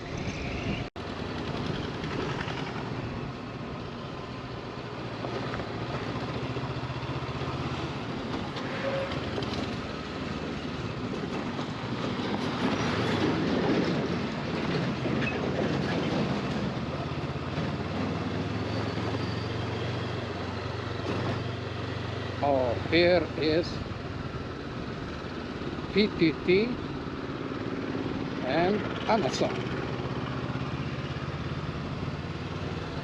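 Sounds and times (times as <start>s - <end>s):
motorcycle engine running: 0.0s - 12.1s, 16.1s - 33.0s
wind and road noise: 0.0s - 33.0s.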